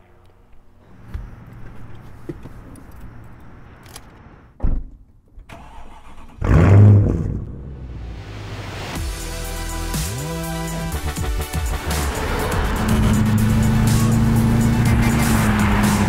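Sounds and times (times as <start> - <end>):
car engine starting and idling: 5.4 - 16.0.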